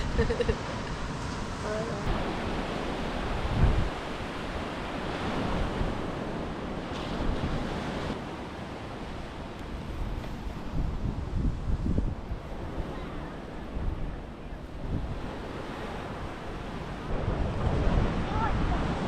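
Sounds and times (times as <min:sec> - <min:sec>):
ocean surf washing onto beach: 0:00.0 - 0:19.0
wind buffeting the microphone: 0:00.0 - 0:19.0.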